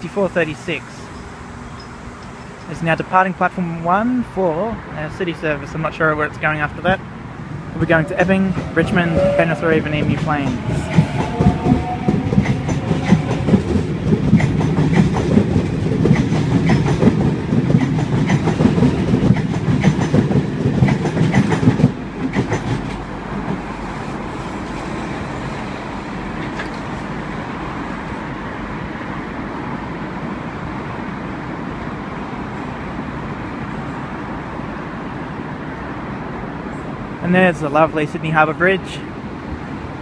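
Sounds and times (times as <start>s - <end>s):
electric train passing rumbling: 0.0s - 40.0s
traffic hum: 0.0s - 40.0s
wheels clicking over rail joints: 10.2s - 27.7s.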